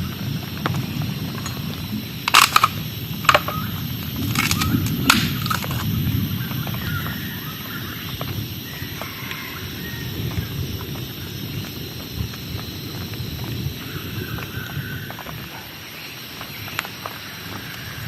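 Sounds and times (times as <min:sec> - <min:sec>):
heavy rain: 0:00.0 - 0:18.0
sharp cracks and snaps: 0:01.4 - 0:06.1.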